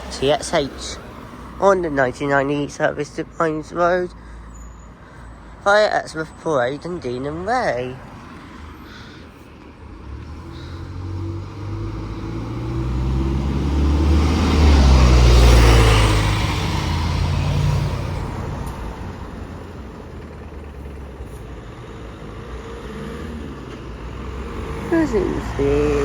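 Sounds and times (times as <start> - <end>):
bus passing: 0.0 - 26.0.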